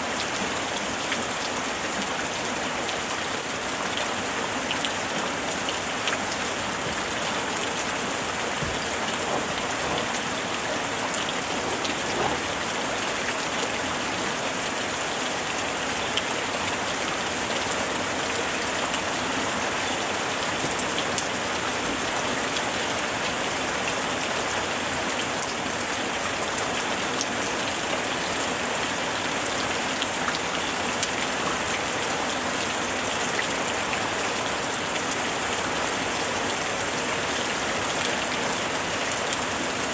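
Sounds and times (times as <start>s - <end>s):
rain hissing on surfaces: 0.0s - 39.9s
raindrop ticks: 8.5s - 12.5s.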